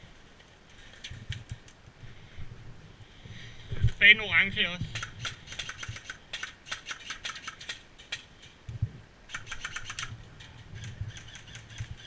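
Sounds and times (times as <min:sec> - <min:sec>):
sharp clicks and crackles: 0:00.4 - 0:01.9, 0:04.9 - 0:12.0.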